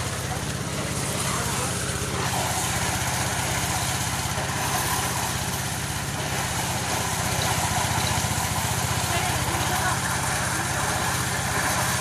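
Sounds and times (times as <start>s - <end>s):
corn thresher engine running: 0.0s - 12.0s.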